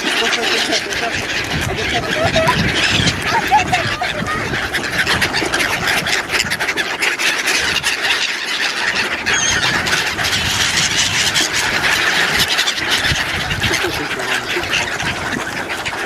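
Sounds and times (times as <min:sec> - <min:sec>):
ducks calling: 0:00.0 - 0:16.0.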